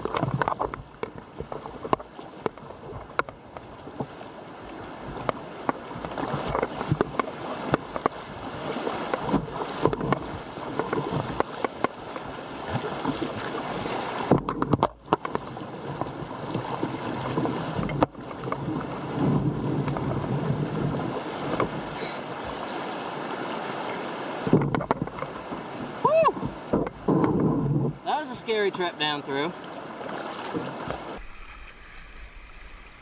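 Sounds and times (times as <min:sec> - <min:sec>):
rushing splashing water: 0:00.0 - 0:27.1, 0:27.8 - 0:33.0
paddle and hull knocks: 0:00.0 - 0:33.0.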